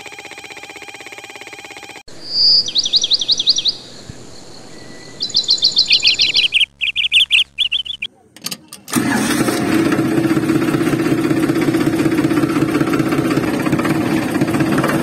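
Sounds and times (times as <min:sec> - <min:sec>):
bird chirping trills: 0:02.1 - 0:08.4
bird whistled note: 0:02.2 - 0:08.1.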